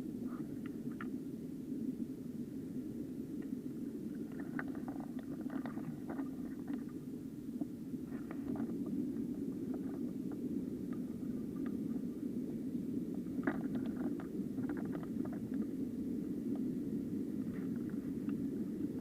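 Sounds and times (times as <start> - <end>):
faint ticks: 3.4 - 3.6, 17.4 - 18.4.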